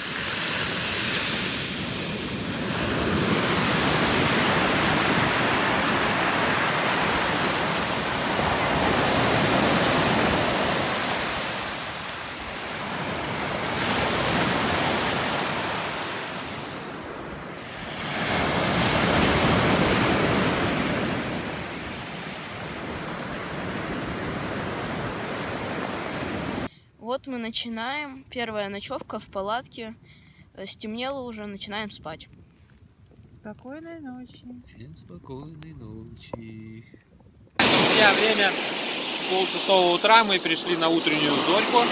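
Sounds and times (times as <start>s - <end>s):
sea surf breaking on shore: 0.0s - 26.7s, 37.6s - 41.9s.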